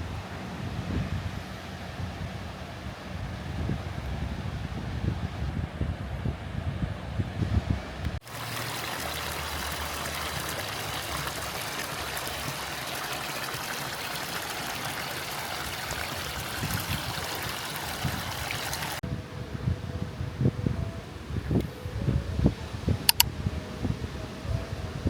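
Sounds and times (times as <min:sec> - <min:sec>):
wind buffeting microphone: 0:00.0 - 0:25.0
running water rushing: 0:08.1 - 0:19.0.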